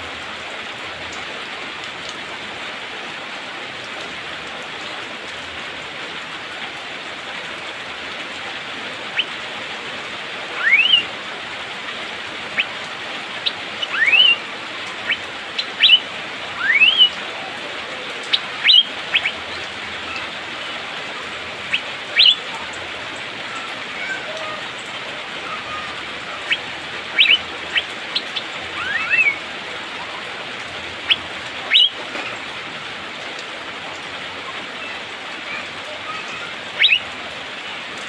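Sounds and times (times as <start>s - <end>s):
rain hissing: 0.0s - 38.0s
bird rising whistles: 10.6s - 11.0s.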